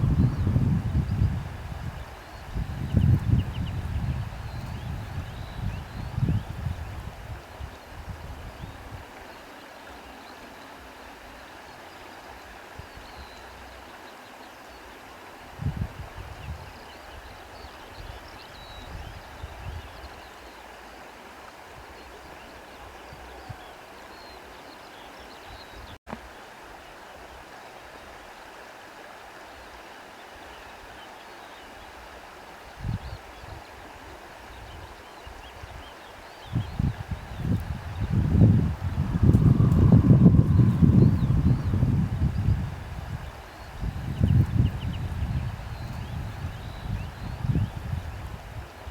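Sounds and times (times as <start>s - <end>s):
wind rushing through foliage: 0.0s - 48.9s
wind rushing: 37.0s - 45.5s.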